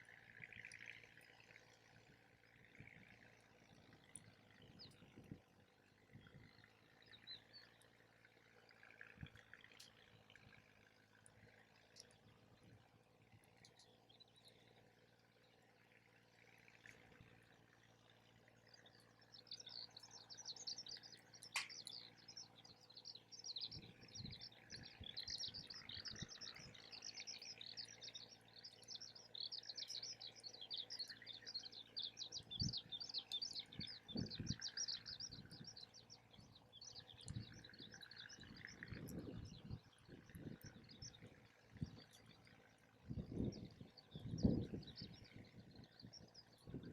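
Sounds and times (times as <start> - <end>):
birds chirping: 6.0 - 46.9
sharp click: 21.4 - 22.0.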